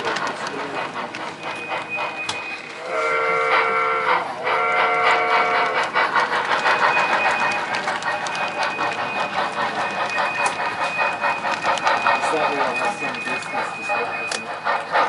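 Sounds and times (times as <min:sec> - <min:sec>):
fast run of clicks: 0:00.0 - 0:02.8, 0:05.5 - 0:13.6
model train whistle: 0:02.4 - 0:05.8.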